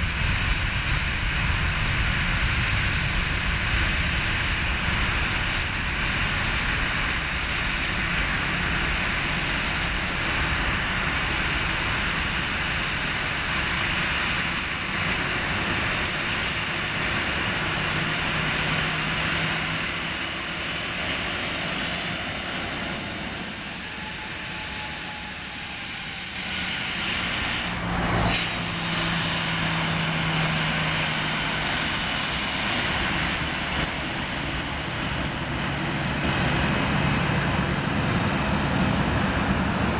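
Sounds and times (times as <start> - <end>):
jet engines roaring: 0.0 - 39.9
faint rising whines: 9.7 - 39.9
low hum: 15.4 - 39.9.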